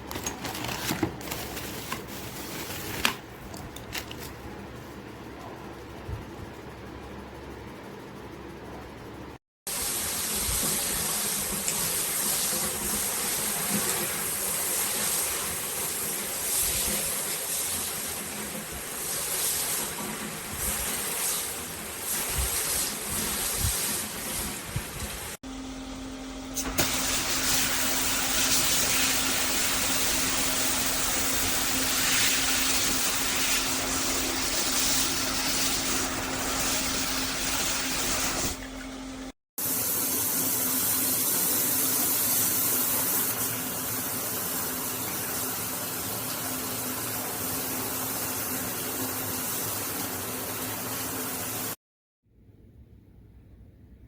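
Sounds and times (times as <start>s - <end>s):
water spraying from shower head: 9.7s - 25.4s, 26.6s - 38.6s.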